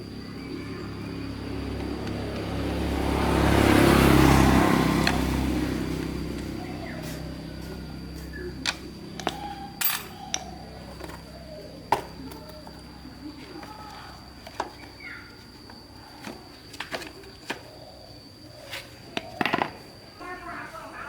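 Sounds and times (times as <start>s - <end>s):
vehicle passing: 0.0s - 16.6s.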